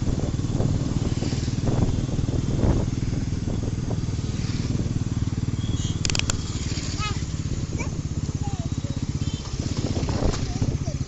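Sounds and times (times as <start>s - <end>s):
motorcycle engine running: 0.0s - 11.0s
sharp clicks: 6.0s - 6.5s.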